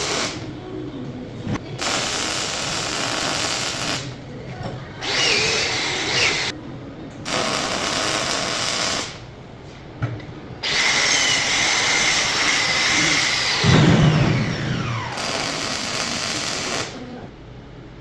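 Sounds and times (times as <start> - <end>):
arc welding crackling hiss: 0.0 - 0.6, 1.8 - 4.2, 5.0 - 6.6, 7.2 - 9.4, 10.6 - 17.1.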